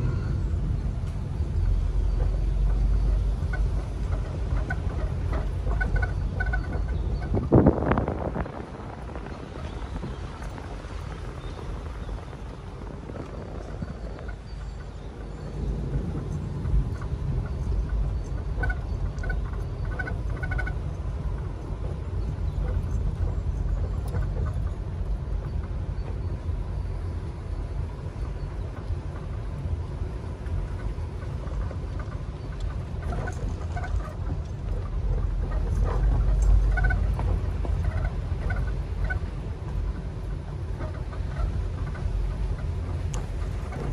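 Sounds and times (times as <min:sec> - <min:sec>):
vehicle driving on forest track: 0:00.0 - 0:43.9.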